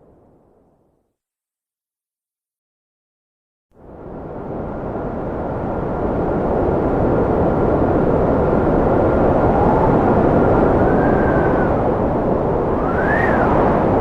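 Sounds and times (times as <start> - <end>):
strong wind rushing: 3.9 - 14.0
wind whistling: 4.0 - 14.0.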